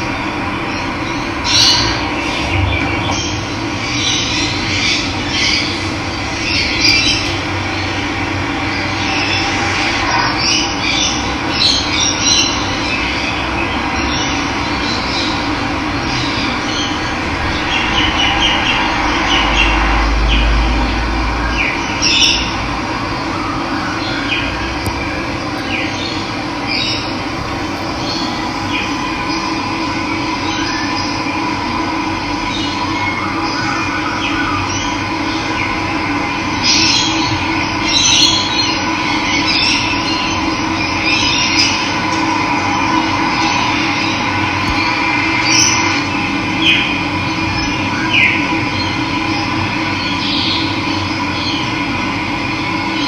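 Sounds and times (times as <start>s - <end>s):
birds chirping: 24.0s - 31.3s.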